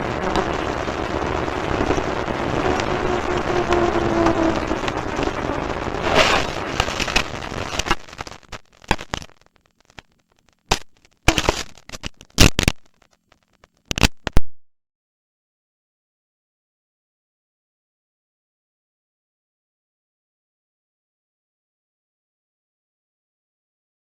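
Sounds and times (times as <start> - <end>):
vehicle noise: 0.0 - 8.1
sharp cracks and knocks: 6.0 - 14.4.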